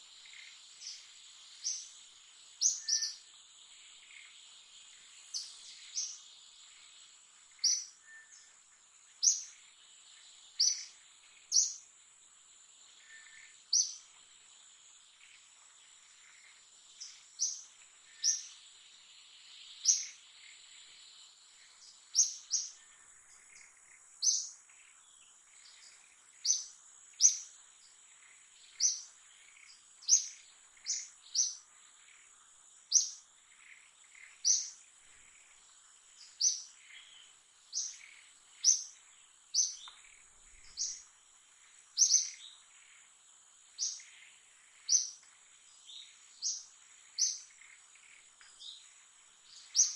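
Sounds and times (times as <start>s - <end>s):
bird chirping: 0.0s - 49.9s
high thin insect whine: 0.0s - 49.9s.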